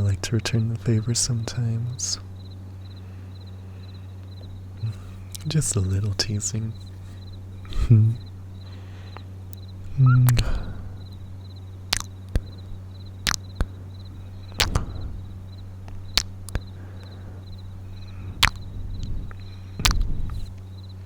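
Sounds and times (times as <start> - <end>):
faint high chirping: 0.0 - 21.0
steady low hum: 0.0 - 21.0
kissing lip smacks: 6.8 - 8.2, 9.2 - 10.9, 11.9 - 20.7.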